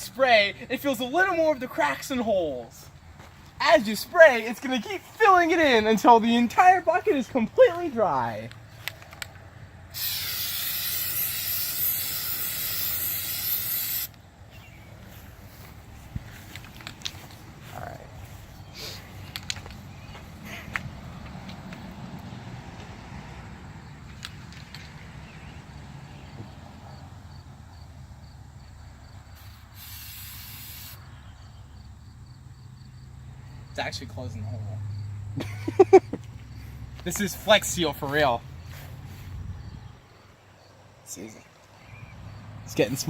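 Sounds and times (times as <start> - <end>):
aerosol can spraying: 10.0 - 14.2, 29.4 - 31.0.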